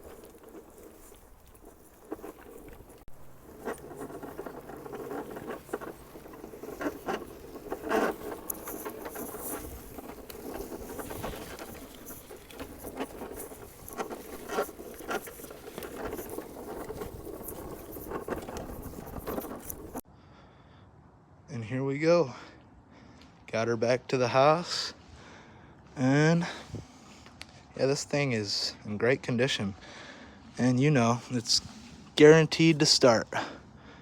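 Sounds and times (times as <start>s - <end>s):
dry leaves rustling and crackling: 0.0s - 20.0s.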